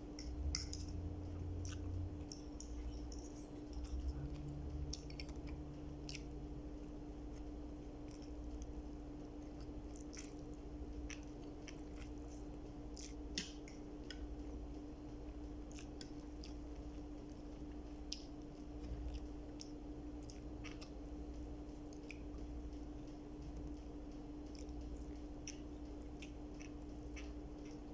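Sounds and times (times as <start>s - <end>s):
person chewing food: 0.0s - 27.9s
steady low hum: 0.0s - 27.9s.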